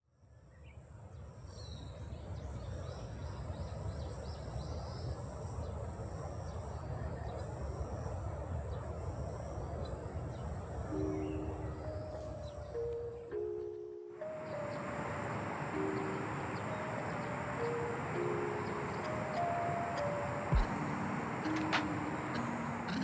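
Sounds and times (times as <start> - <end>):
birds chirping: 2.6 - 23.0
sustained musical notes: 10.9 - 23.0.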